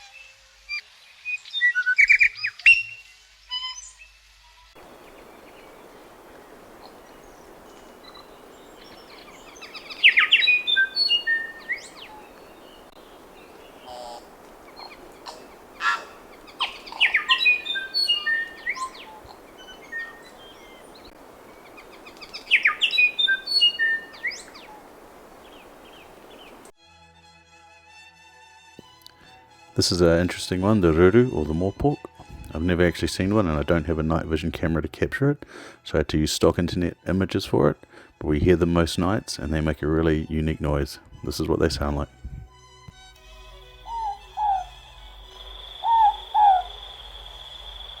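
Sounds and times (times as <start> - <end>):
steady background hiss: 4.8 - 26.7, 43.2 - 48.0
bird singing clicks and whistles: 4.9 - 26.7, 45.6 - 48.0.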